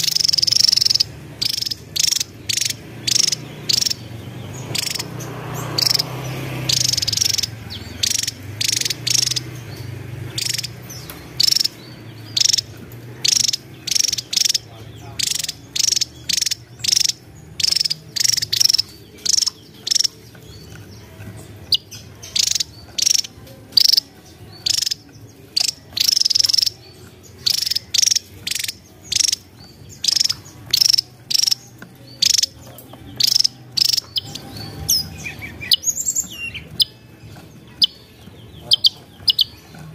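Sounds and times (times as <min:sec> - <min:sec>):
bird calling in buzzy chips: 0:00.0 - 0:39.9.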